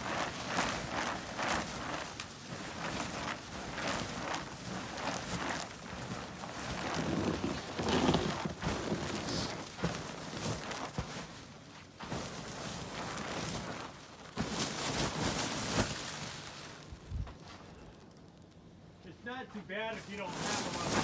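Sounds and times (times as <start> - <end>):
snow crunching: 0.0 - 17.9, 19.8 - 21.0
shovel scraping swishes: 20.1 - 21.0.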